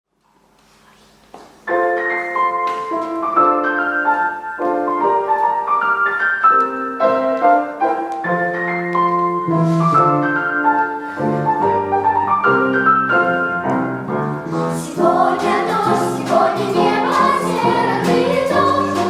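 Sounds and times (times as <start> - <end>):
piano chords and melody: 1.6 - 19.0.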